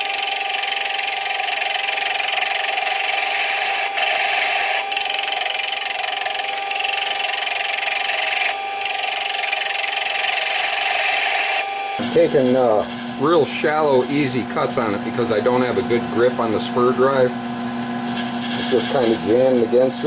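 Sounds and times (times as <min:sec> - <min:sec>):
tool cutting wood hiss: 0:00.0 - 0:12.0
wood lathe hum: 0:00.0 - 0:12.1.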